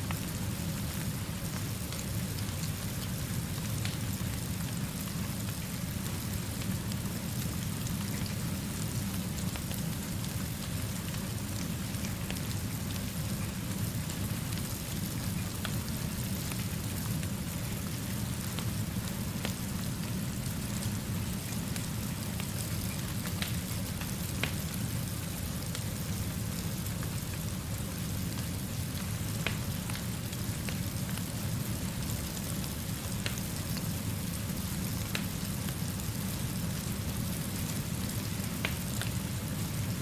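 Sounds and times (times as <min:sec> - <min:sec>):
steady rainfall hiss: 0:00.0 - 0:40.0.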